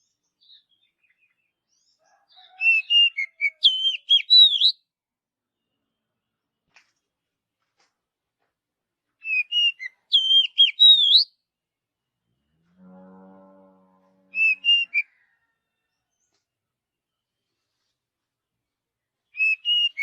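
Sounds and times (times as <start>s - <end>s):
bird singing whistled notes: 2.6s - 4.8s, 9.2s - 11.4s, 14.4s - 15.1s, 19.3s - 20.0s.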